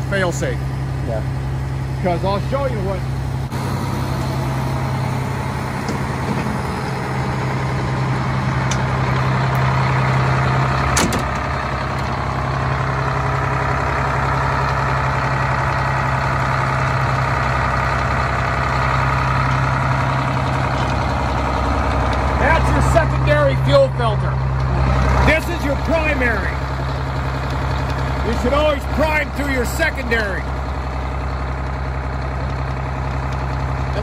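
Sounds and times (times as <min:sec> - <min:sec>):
bus diesel engine idling: 0:00.0 - 0:34.0.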